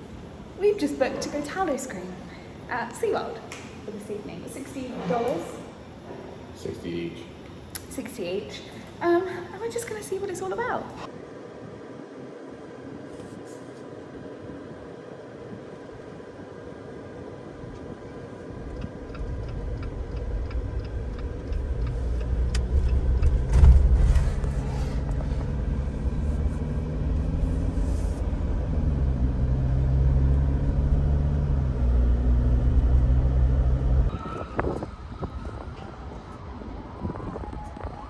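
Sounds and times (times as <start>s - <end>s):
car engine and road rumble: 17.4s - 34.1s
thump: 23.2s - 25.4s.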